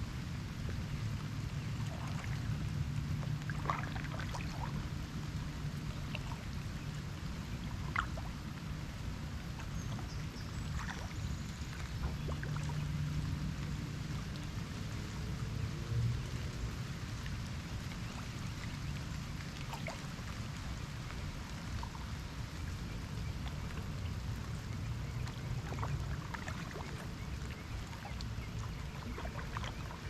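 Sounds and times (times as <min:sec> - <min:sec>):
paddle splashes and drips: 0:00.0 - 0:30.0
soft wash of water: 0:00.0 - 0:30.0.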